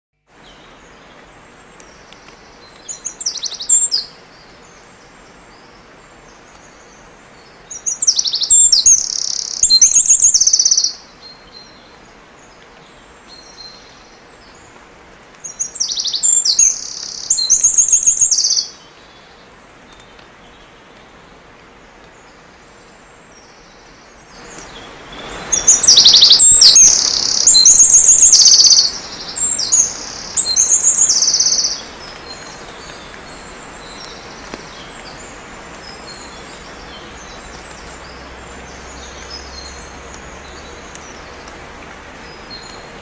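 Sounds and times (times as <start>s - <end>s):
faint steady hiss: 0.2s - 43.0s
bird chirps and trills: 7.7s - 11.8s, 15.5s - 18.9s, 23.4s - 41.5s.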